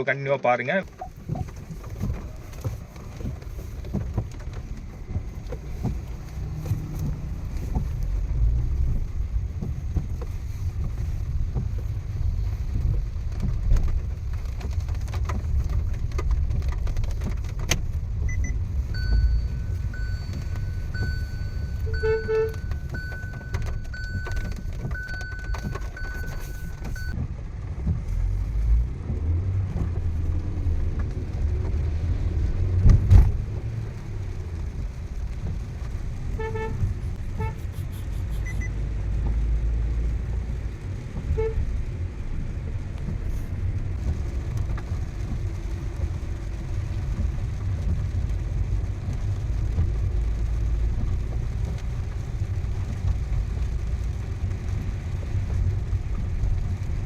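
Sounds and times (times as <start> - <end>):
engine and road rumble: 0.0 - 57.0
car horn toots: 19.0 - 27.1, 36.3 - 37.7, 41.3 - 41.6.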